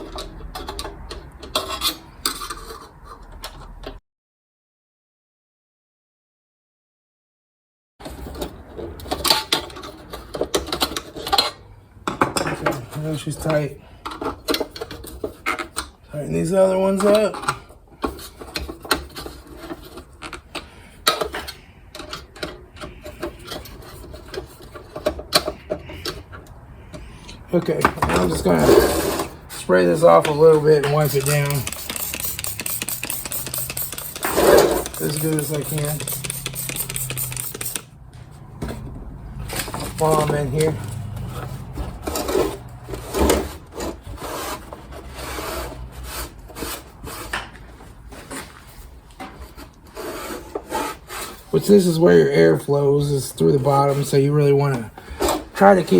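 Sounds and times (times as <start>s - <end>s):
metallic clicks and scrapes: 0.0s - 4.0s, 17.0s - 47.6s
rag wiping metal heater: 28.1s - 37.8s, 39.5s - 47.3s.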